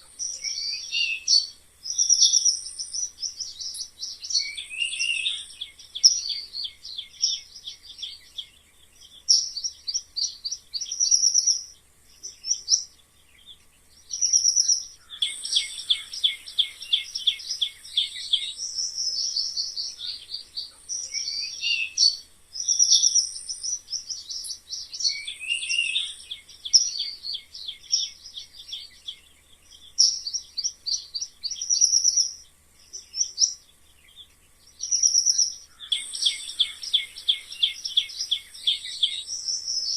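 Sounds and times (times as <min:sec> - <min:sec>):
animal chirping trills and squeaks: 0:14.1 - 0:28.9, 0:34.7 - 0:39.9.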